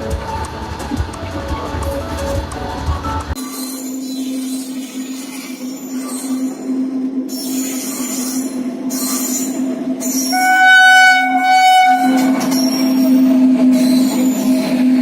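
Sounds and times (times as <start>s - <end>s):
train running hum: 0.0s - 15.0s
train horn blast: 10.2s - 13.2s.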